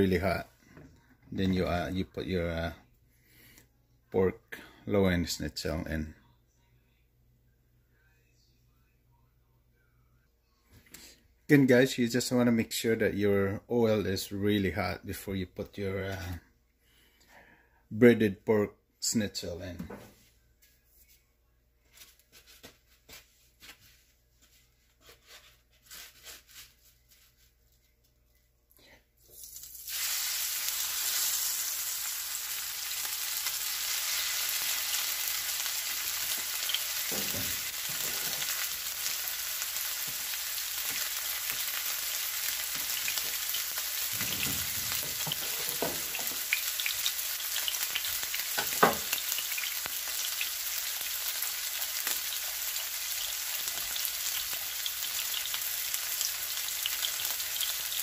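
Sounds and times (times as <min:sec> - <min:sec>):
deep frying sizzle: 0:29.4 - 0:58.0.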